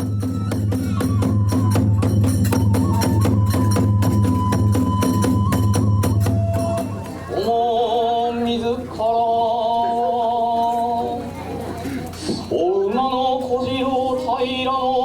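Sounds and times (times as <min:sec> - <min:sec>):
bamboo flute high note: 0:00.0 - 0:07.3
drum beating steadily: 0:00.0 - 0:07.6
small hand cymbals clashing: 0:02.0 - 0:04.5.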